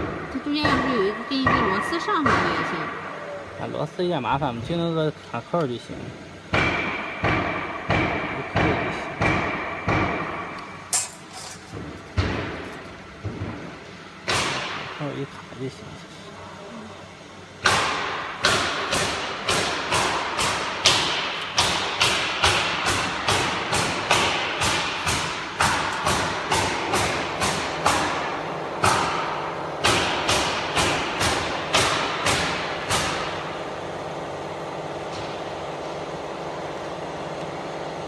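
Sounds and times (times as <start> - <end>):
sharp ringing knocks: 0.0 - 3.0, 6.5 - 11.1.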